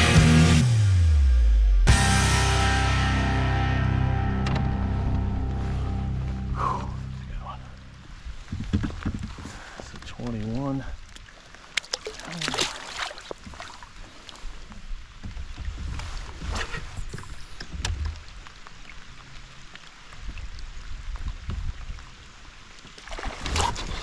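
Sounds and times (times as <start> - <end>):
low rumble: 0.0 - 9.0
water splashing: 4.9 - 24.0.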